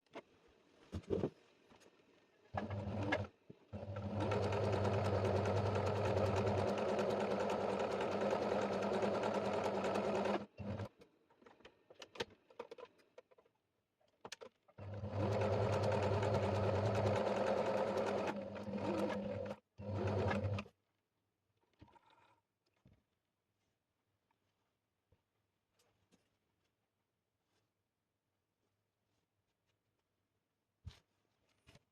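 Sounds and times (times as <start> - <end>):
sewing machine stitching: 2.6 - 11.0, 14.8 - 20.7.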